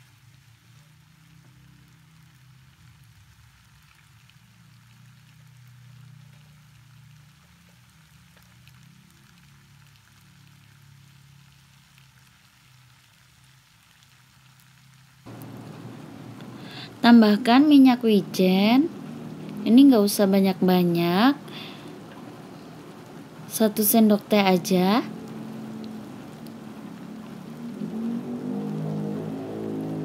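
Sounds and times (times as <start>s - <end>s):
low steady hum: 15.3s - 30.0s.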